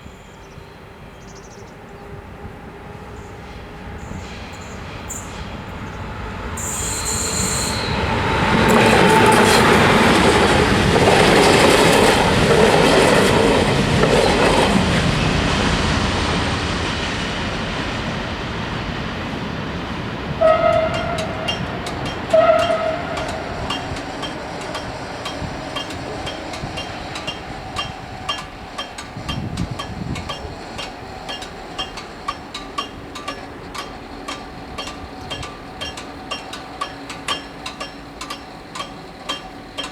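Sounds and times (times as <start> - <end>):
train wheels clattering: 3.1 - 39.9
train horn blasts: 6.5 - 10.6, 20.3 - 30.1
crossing bells ringing: 6.6 - 14.9, 20.1 - 39.9.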